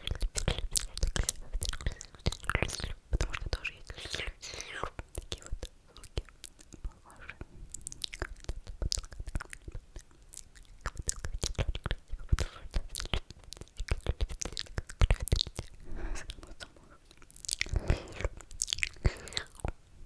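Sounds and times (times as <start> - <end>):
mouth slurping: 0.0 - 5.6, 10.5 - 19.7
wet mouth clicks and smacks: 0.0 - 19.8.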